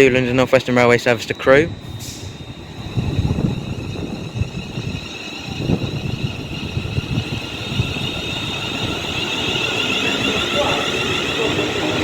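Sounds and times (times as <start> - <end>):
train electric whine: 0.0 - 12.0
wheels rumbling on track: 0.0 - 12.0.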